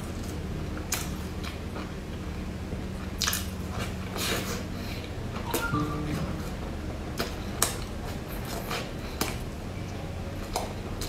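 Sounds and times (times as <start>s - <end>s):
chewing soft bread: 0.0s - 5.4s, 7.2s - 11.0s.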